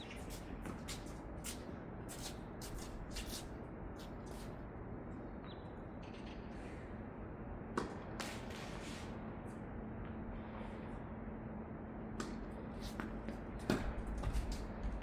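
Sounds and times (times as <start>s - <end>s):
shoes scuffing on court: 0.0s - 4.6s, 12.2s - 15.0s
steady background noise: 0.0s - 15.0s.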